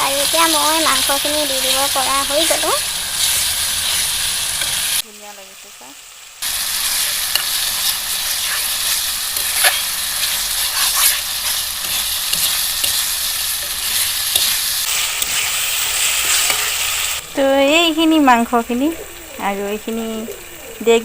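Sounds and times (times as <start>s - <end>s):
food sizzling in hot oil: 0.0s - 21.0s
spatula scraping a pan: 2.4s - 4.9s, 6.6s - 17.0s.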